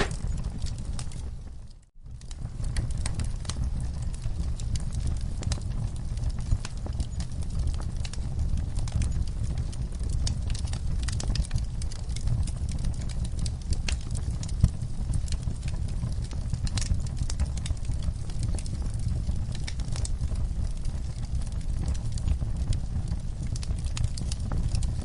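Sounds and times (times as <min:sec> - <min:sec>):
loud fire pop: 0:00.0 - 0:00.4
low rumble of flames: 0:00.0 - 0:25.0
wood fire crackling: 0:00.0 - 0:25.0.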